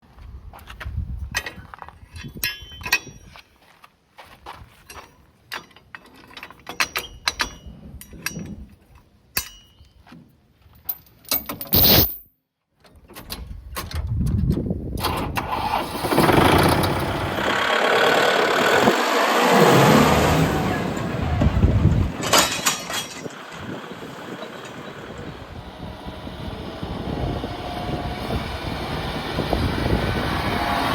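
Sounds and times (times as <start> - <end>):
tractor engine starting and running: 13.0 - 30.9.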